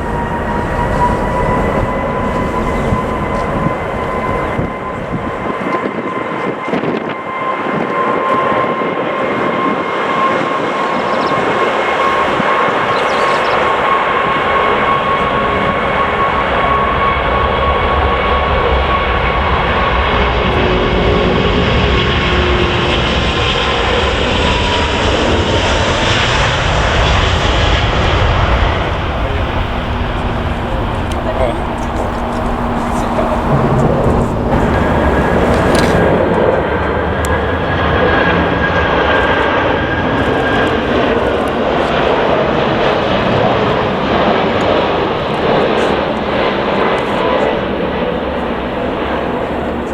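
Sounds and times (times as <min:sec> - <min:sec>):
deep rumble: 0:00.0 - 0:06.8, 0:12.0 - 0:49.9
jet engine high whine: 0:00.0 - 0:49.9
jet engine rushing roar: 0:00.0 - 0:49.9.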